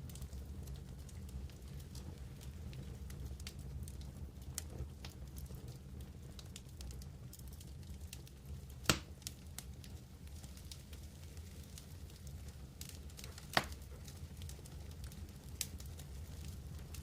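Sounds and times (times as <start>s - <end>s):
campfire crackling: 0.0s - 17.0s
loud fire pop: 8.8s - 9.2s.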